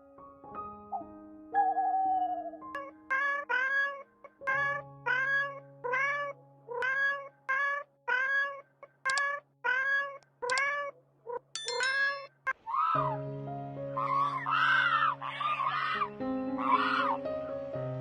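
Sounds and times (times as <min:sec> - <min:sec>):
background music: 0:00.0 - 0:07.8, 0:13.0 - 0:18.0
animal mewing calls: 0:01.6 - 0:10.9, 0:14.0 - 0:17.2.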